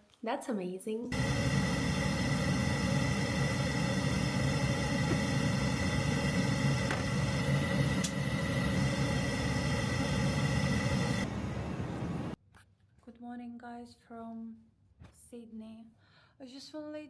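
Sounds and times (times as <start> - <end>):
vehicle cabin drone: 1.1 - 12.4.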